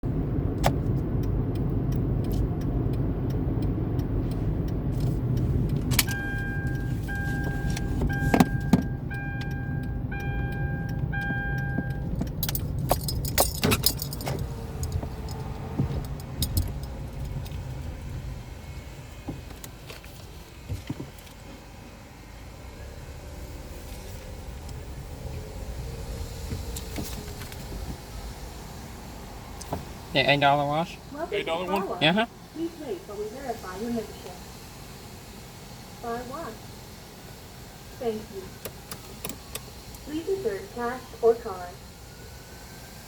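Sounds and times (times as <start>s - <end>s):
car engine idling: 0.0s - 43.0s
sharp clicks and rattles: 0.5s - 18.4s
electronic beeps: 6.1s - 12.2s.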